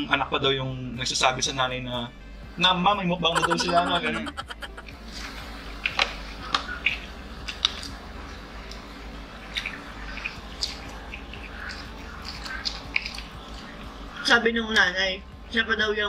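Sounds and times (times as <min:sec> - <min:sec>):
people chewing food: 0:05.9 - 0:14.2.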